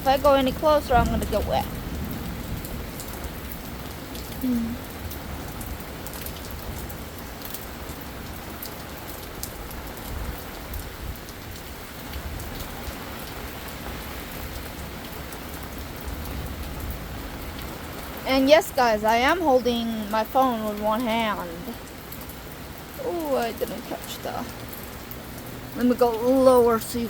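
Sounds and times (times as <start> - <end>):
heavy rain: 0.0 - 27.0
drops ticking nearby: 17.6 - 27.0.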